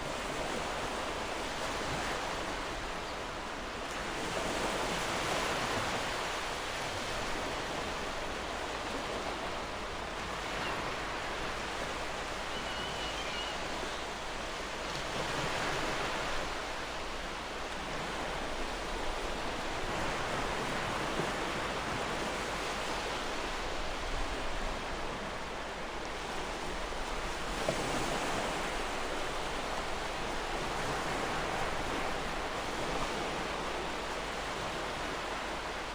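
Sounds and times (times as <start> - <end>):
ocean waves washing ashore: 0.0 - 35.9
faint bird chirp: 12.2 - 14.1.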